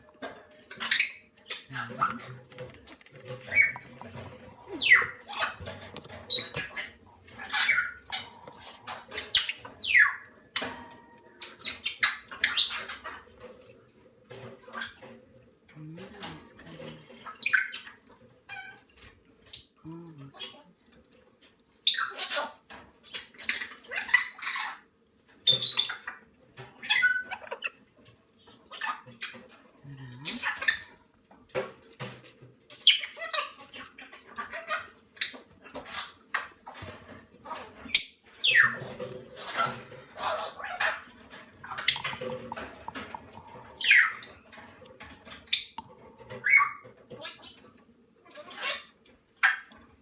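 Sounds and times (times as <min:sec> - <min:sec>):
cockatoo chicks squawking: 0:03.3 - 0:10.4, 0:26.8 - 0:27.8, 0:38.4 - 0:44.4
cockatoo chicks begging calls: 0:26.9 - 0:27.7.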